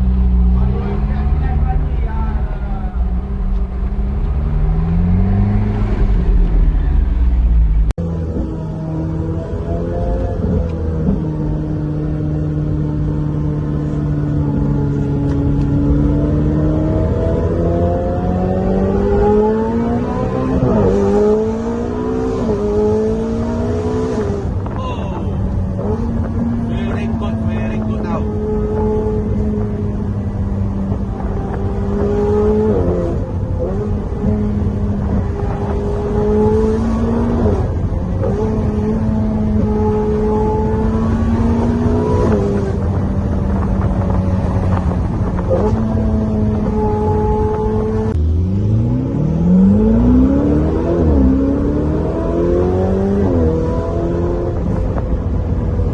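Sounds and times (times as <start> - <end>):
car engine accelerating with upshifts: 0.0 - 55.9.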